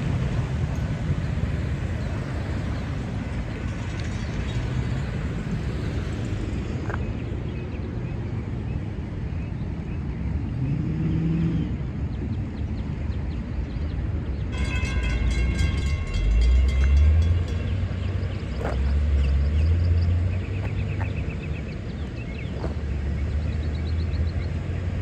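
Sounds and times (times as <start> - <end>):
high pulsing ringing: 14.5 - 18.3
train rumbling past: 14.5 - 20.9.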